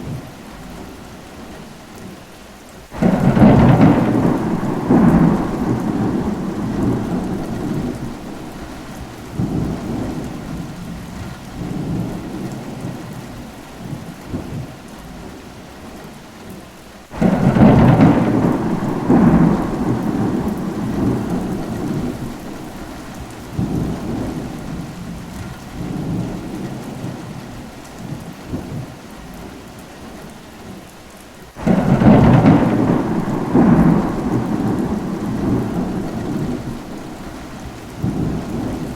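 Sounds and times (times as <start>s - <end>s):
steady rain: 0.0s - 38.9s
rolling thunder: 3.0s - 14.8s, 17.1s - 29.0s, 31.6s - 38.9s.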